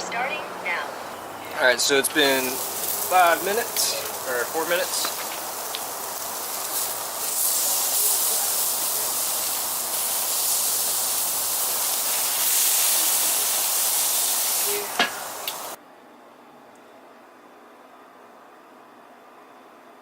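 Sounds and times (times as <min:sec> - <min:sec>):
steaks sizzling: 0:00.1 - 0:15.8.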